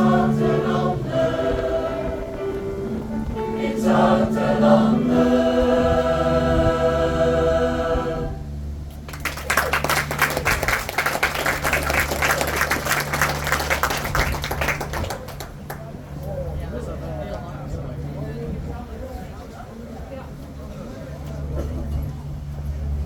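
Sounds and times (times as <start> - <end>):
backing music: 0.0 - 8.4
choir singing: 0.0 - 8.6
audience applause: 9.1 - 15.9.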